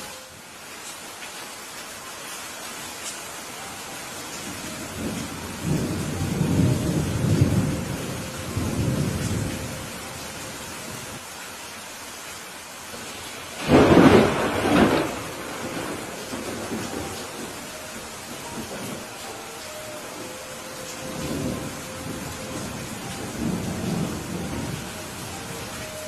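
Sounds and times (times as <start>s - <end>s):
steady rain falling: 0.0s - 26.0s
rolling thunder rumble: 4.6s - 10.1s, 13.6s - 19.2s, 20.9s - 26.0s
sharp thunderclap: 13.6s - 16.9s.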